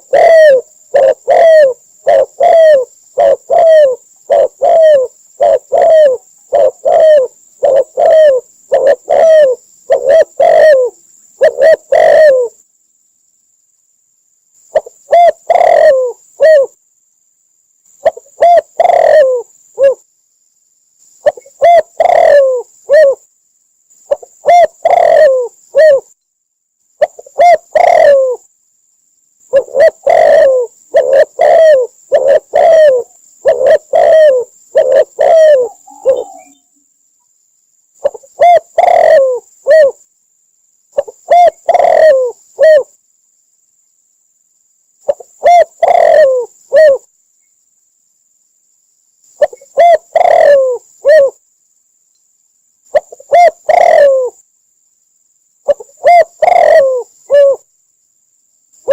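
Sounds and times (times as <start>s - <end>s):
dove cooing: 0.0s - 12.6s, 14.7s - 16.8s, 18.0s - 20.0s, 21.2s - 23.3s, 24.1s - 26.1s, 27.0s - 28.5s, 29.5s - 36.7s, 38.0s - 40.0s, 41.0s - 42.9s, 45.0s - 47.1s, 49.4s - 51.4s, 52.9s - 54.4s, 55.6s - 57.7s
faint steady high hiss: 0.0s - 58.9s.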